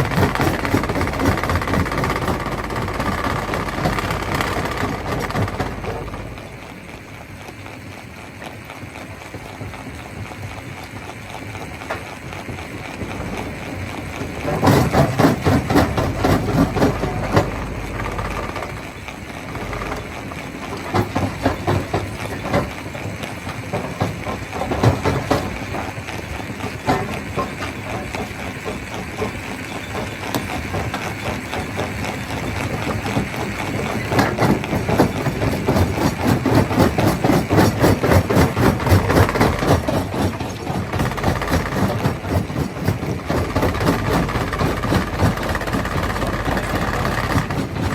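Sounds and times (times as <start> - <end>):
stone crusher engine drone: 0.0 - 47.9.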